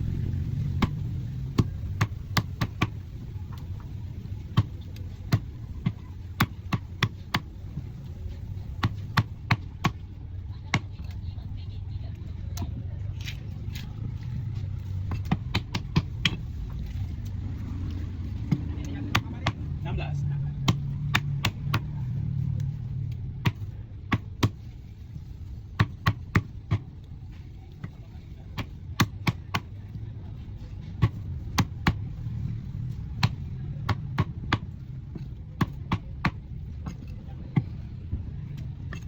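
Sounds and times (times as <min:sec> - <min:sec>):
low hum: 0:00.0 - 0:09.5.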